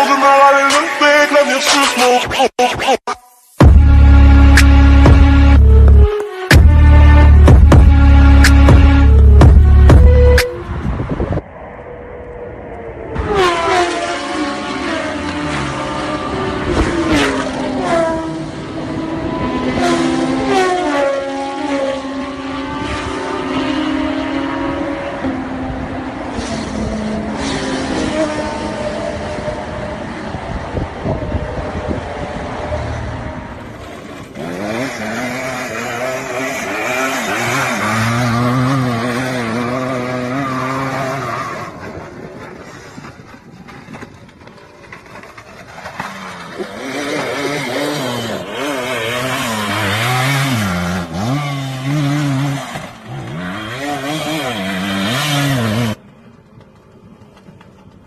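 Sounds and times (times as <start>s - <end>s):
dirt bike engines revving: 13.2s - 43.0s, 45.3s - 56.0s.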